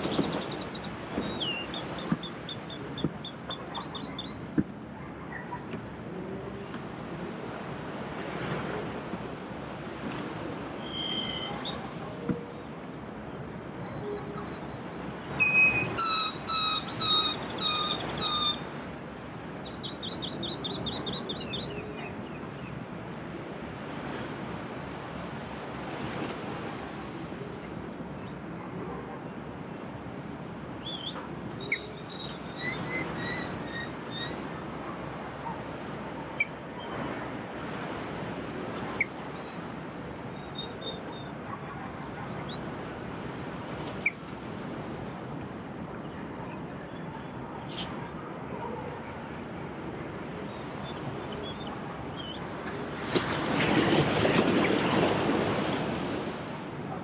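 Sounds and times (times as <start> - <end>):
bird chirps: 13.8 - 18.6
birds calling: 13.9 - 18.7
bird trill: 14.2 - 18.7
sea waves washing: 15.0 - 19.6, 49.2 - 57.0.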